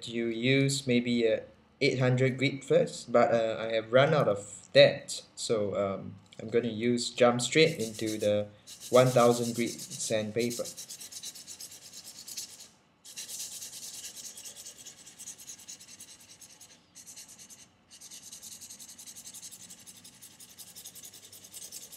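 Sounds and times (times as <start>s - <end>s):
knife scratching on sandpaper: 7.5s - 21.9s.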